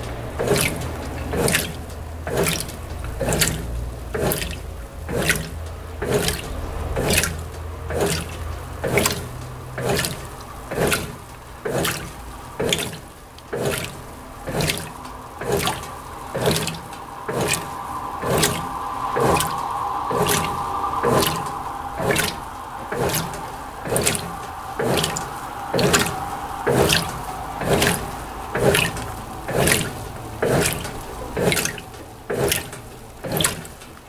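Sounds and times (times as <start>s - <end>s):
washing machine sloshing water: 0.0s - 34.0s
faint steady hum: 12.2s - 33.2s.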